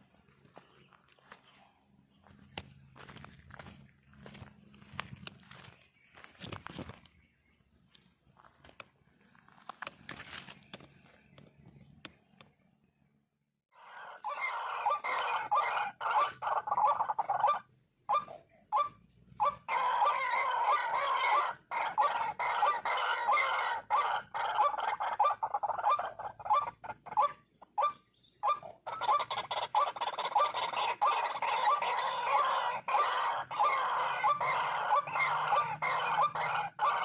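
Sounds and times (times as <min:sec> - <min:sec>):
bird harsh croaking calls: 0:13.7 - 0:37.0.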